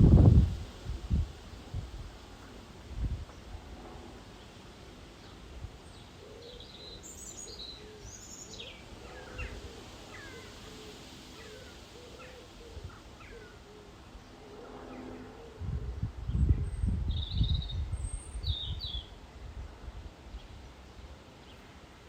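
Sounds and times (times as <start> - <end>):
birds calling: 5.9 - 15.4.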